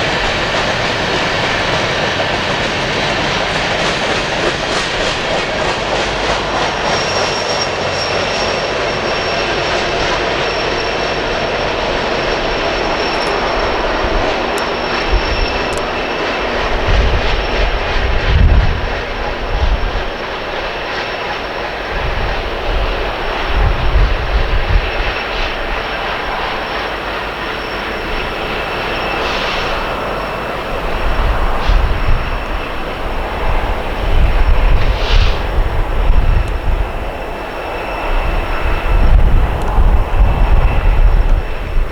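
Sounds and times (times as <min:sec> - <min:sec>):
diesel locomotive engine drone: 0:00.0 - 0:41.9
thin high whine: 0:06.6 - 0:20.2.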